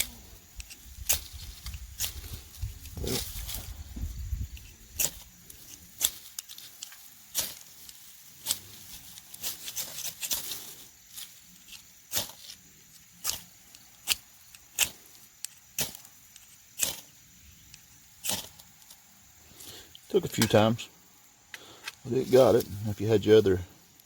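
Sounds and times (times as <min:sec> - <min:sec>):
striker scraping spark rod: 0:04.4 - 0:19.0.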